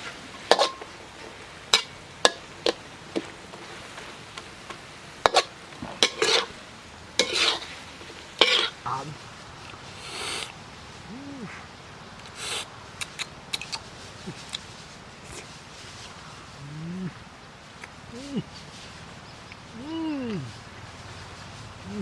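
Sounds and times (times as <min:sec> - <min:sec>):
utensil scraping a pot: 0:00.4 - 0:02.8, 0:05.2 - 0:06.6, 0:07.2 - 0:08.8.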